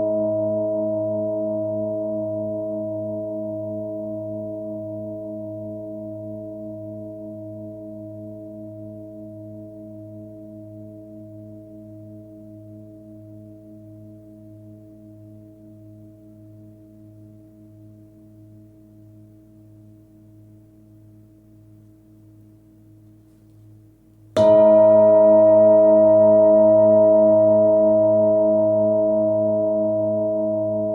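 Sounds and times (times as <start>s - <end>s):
singing bowl ringing: 24.4s - 30.9s
singing bowl struck: 24.4s - 30.9s.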